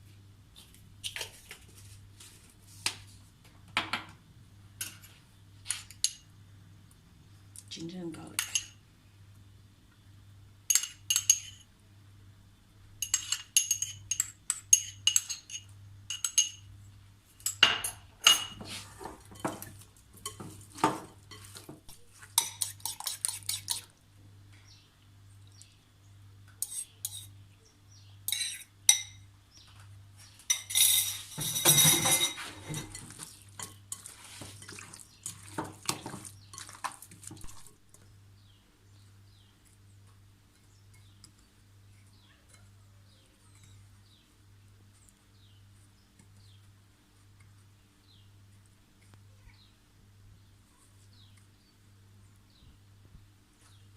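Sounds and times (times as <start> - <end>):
metal utensils clinking on cookware: 8.2 - 8.8, 10.7 - 11.6, 13.0 - 16.7, 17.4 - 21.7, 22.4 - 23.8, 26.6 - 27.3, 28.3 - 29.2, 30.4 - 36.9.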